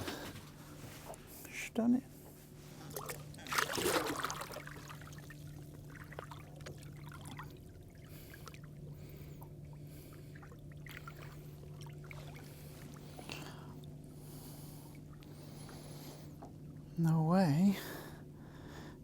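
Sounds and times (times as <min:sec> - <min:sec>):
low hum: 0:00.0 - 0:19.0
water lapping and trickling: 0:02.2 - 0:18.8
fish splashing into water: 0:02.9 - 0:07.6.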